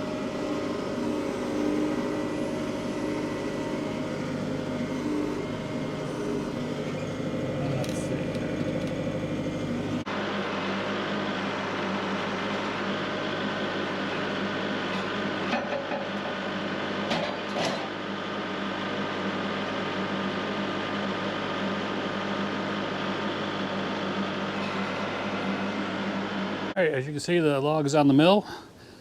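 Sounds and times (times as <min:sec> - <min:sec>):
engine idling: 0:00.0 - 0:15.4.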